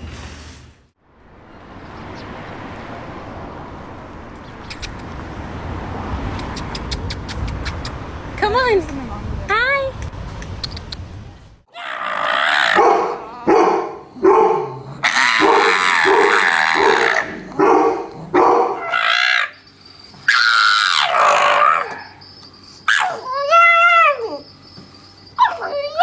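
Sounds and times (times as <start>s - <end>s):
dog howling: 11.7s - 19.5s, 20.3s - 22.2s, 22.9s - 24.5s, 25.4s - 26.0s
dog barking: 12.6s - 19.0s.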